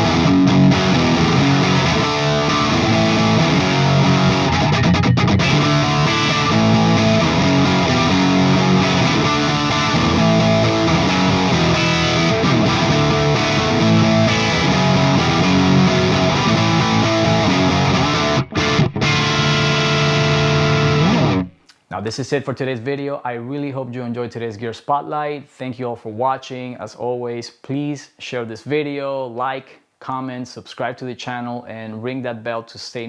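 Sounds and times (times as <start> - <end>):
distorted electric guitar chords: 0.0 - 21.6.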